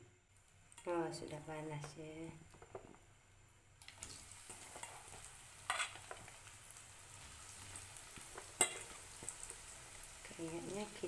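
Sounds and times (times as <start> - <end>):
oil sizzling: 0.0 - 11.0
sharp oil crackle: 0.3 - 1.8, 2.4 - 11.0
food dropped into hot oil: 2.5 - 3.0, 3.8 - 6.4.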